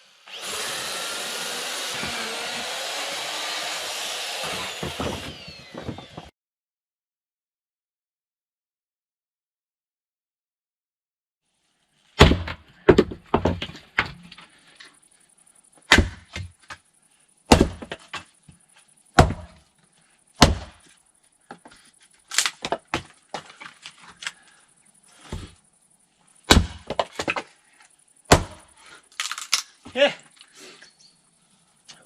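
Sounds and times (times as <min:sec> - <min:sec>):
wooden knocks of firewood: 0:04.5 - 0:06.3, 0:12.2 - 0:14.4, 0:17.5 - 0:18.6, 0:19.2 - 0:19.6, 0:20.4 - 0:20.9, 0:22.4 - 0:23.8, 0:26.5 - 0:27.5.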